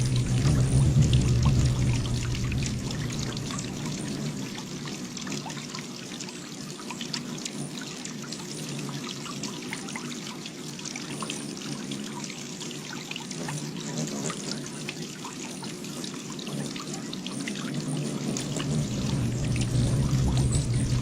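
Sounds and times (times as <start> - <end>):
faint low hum: 0.0 - 5.4, 18.1 - 21.0
water trickling and splashing: 0.0 - 21.0.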